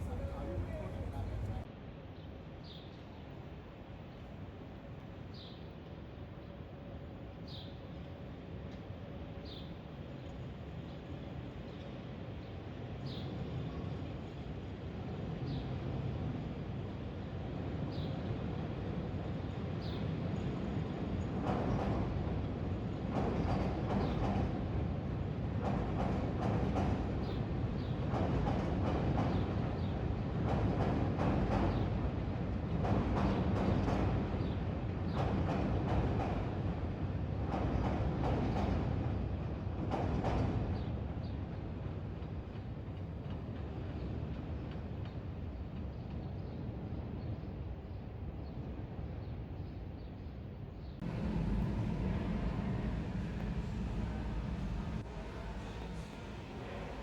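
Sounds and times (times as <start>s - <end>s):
low rumble of traffic: 0.0s - 1.7s, 50.9s - 57.0s
train passing: 0.0s - 1.7s, 51.0s - 57.0s
train wheels clacking: 0.0s - 1.7s, 51.0s - 57.0s.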